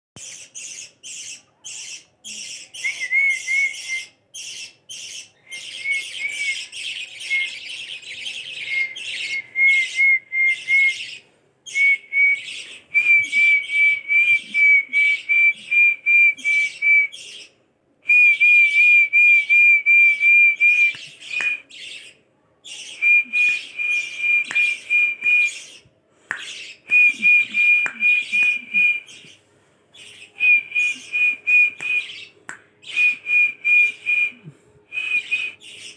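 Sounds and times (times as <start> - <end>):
parrots chirping: 3.8 - 12.8.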